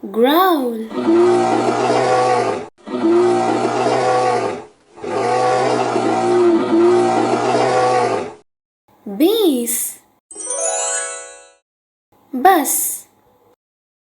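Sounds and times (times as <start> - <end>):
bear growling: 0.8 - 8.4.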